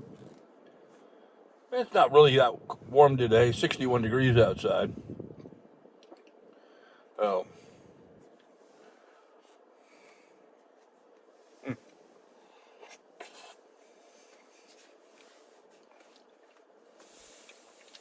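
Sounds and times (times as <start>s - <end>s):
faint eating sounds: 5.7s - 18.0s.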